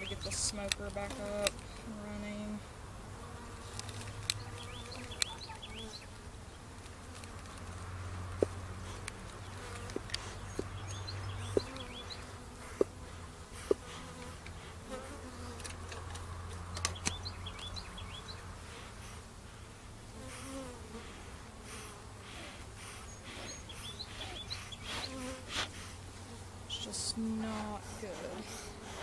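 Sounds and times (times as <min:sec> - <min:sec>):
honey bees buzzing: 0:00.0 - 0:29.0
sharp clicks from hive handling: 0:00.1 - 0:01.9, 0:03.7 - 0:05.8, 0:06.8 - 0:13.0, 0:15.5 - 0:17.8.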